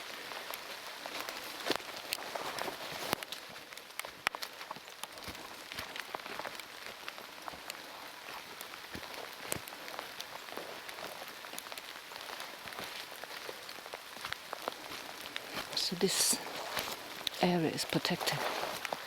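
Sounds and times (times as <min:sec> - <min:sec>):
heavy rain hiss: 0:14.6 - 0:19.0.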